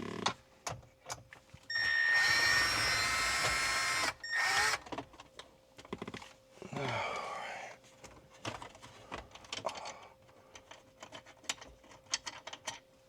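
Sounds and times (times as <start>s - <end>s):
cordless drill running: 1.7s - 4.9s
screws and plastic rattling: 10.5s - 12.8s.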